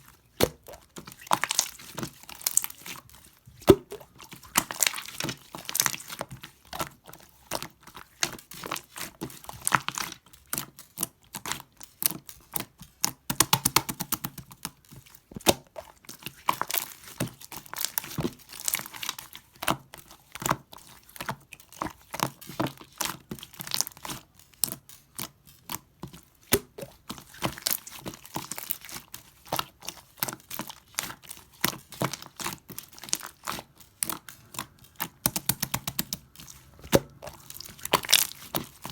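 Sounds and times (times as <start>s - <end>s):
slime popping and clicking: 35.0s - 38.4s.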